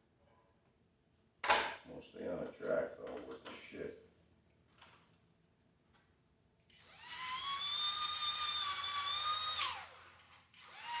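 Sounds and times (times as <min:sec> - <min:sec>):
small electric motor whining: 0:06.8 - 0:11.0.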